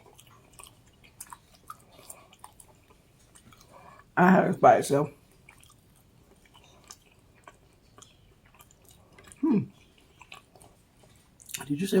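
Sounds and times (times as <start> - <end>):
close-up chewing of food: 0.0 - 4.2, 5.1 - 11.8
person humming mm: 9.4 - 9.7.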